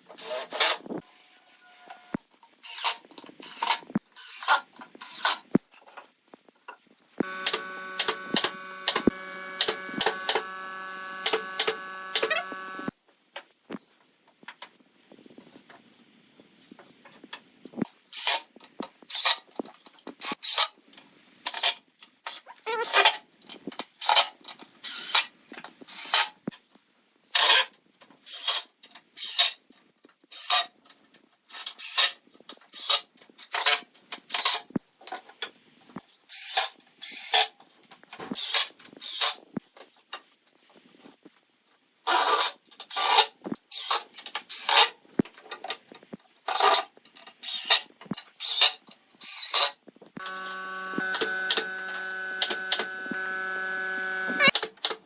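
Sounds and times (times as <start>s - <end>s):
electric hum: 7.2s - 12.9s, 50.2s - 54.5s.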